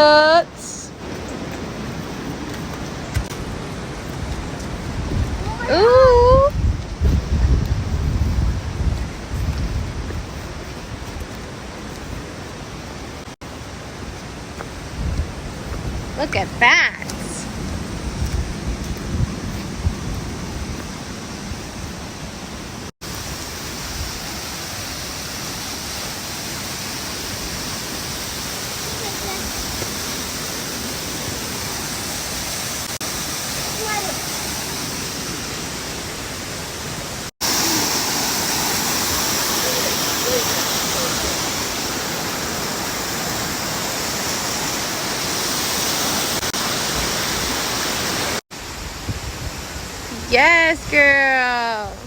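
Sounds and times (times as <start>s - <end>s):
creek waterfall rushing: 10.1s - 17.4s, 20.8s - 50.6s.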